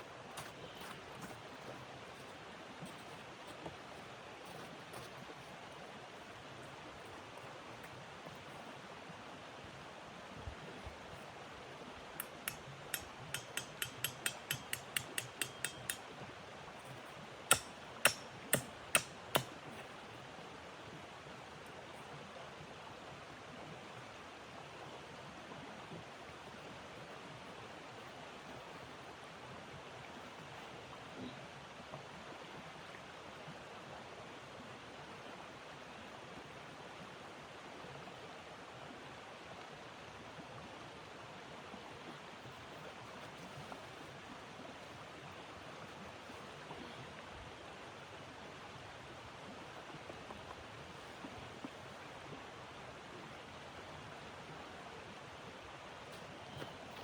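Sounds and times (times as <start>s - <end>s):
light ticks: 12.2s - 16.0s.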